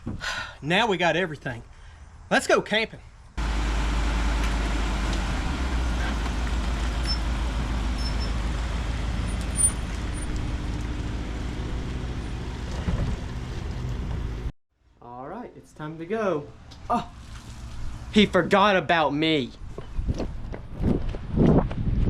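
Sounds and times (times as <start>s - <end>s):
road noise: 3.0s - 14.5s, 15.8s - 22.0s
truck engine rumble: 3.4s - 14.5s.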